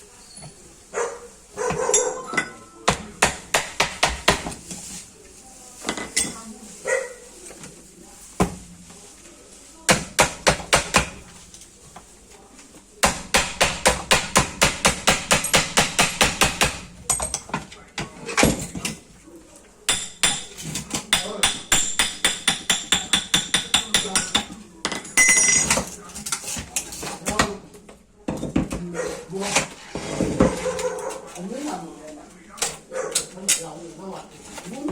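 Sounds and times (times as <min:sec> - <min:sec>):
hammer striking metal: 0:19.9 - 0:24.5.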